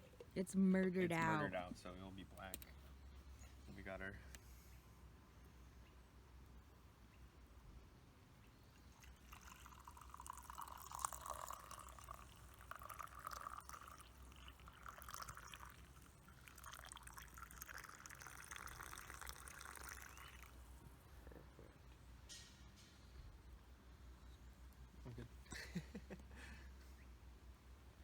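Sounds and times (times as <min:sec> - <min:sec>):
coffee pouring into cup: 0:08.8 - 0:20.6.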